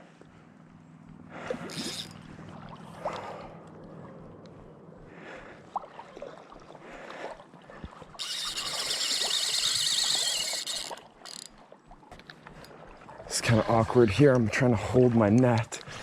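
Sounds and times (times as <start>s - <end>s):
fishing reel drag buzzing: 1.6s - 2.3s, 8.2s - 11.6s.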